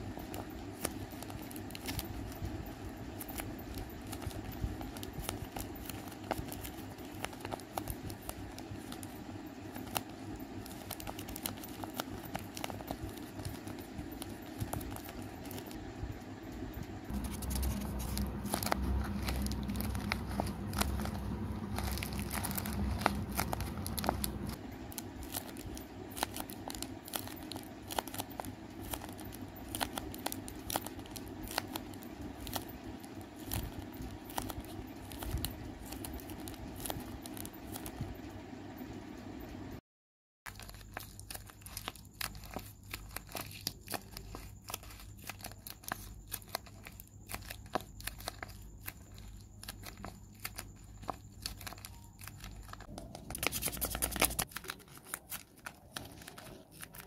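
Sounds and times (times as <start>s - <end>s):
paper squishies crinkling: 0.0s - 38.2s, 40.5s - 57.0s
low hum: 8.0s - 39.8s.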